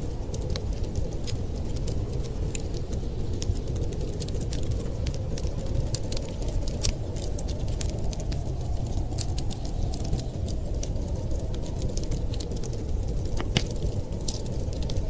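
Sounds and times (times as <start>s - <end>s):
storm wind rumble: 0.0s - 15.0s
wood fire crackling: 0.0s - 15.0s
sharp pops of fire: 11.6s - 15.0s.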